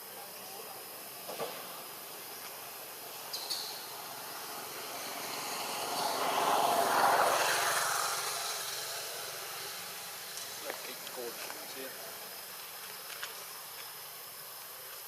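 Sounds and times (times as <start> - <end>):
vehicle passing by: 2.7 - 12.3.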